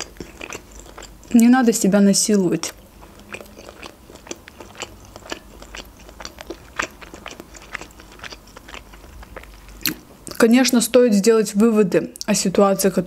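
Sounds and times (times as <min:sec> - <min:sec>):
person chewing: 0:00.0 - 0:01.5, 0:02.3 - 0:10.4.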